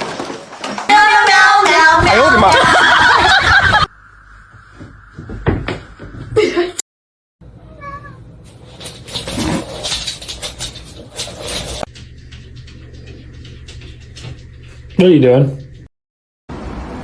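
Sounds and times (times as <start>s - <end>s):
cat meowing: 7.6s - 8.2s
rustling: 8.5s - 11.9s.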